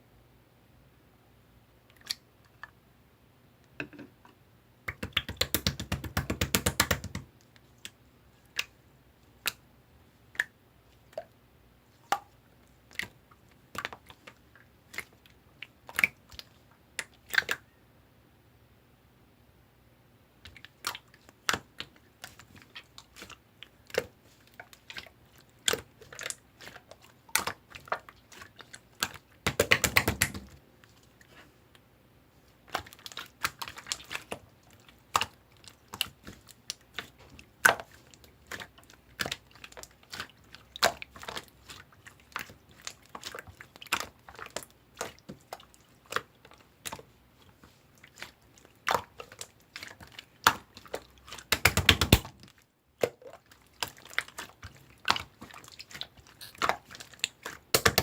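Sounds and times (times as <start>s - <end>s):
slime clicking and popping: 4.9s - 7.2s, 29.0s - 30.6s, 51.4s - 52.4s.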